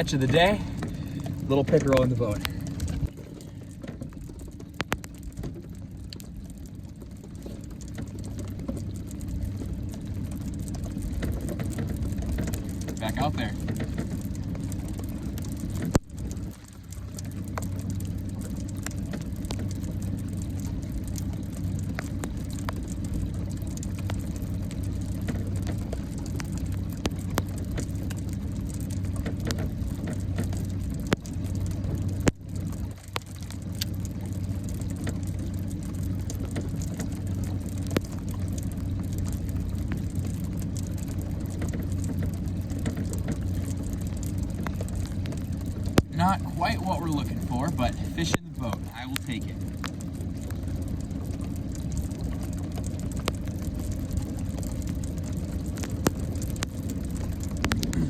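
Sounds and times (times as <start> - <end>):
boat motor humming: 0.0 - 58.0
faint clicks: 0.2 - 58.0.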